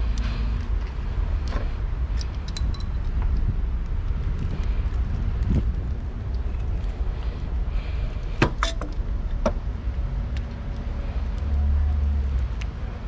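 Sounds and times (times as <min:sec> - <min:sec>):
steady low rumble: 0:00.0 - 0:13.0
metallic clicks of hand tools: 0:01.4 - 0:03.5.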